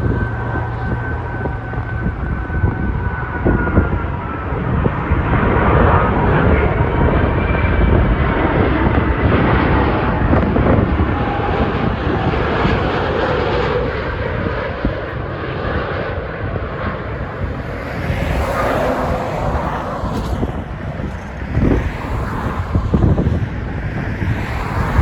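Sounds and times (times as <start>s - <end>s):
jet engines rumbling: 0.0s - 25.0s.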